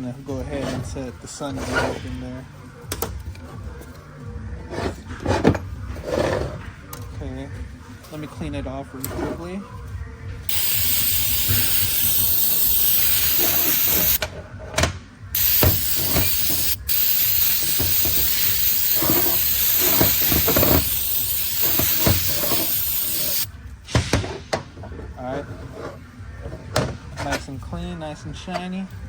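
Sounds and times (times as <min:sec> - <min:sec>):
compressed air blow gun hissing: 0:10.5 - 0:14.2, 0:15.4 - 0:23.5.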